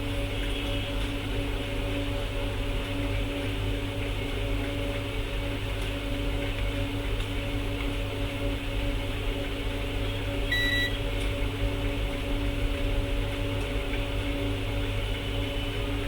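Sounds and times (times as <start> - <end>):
electrical hum: 0.0 - 16.0
short high beep: 10.5 - 11.0.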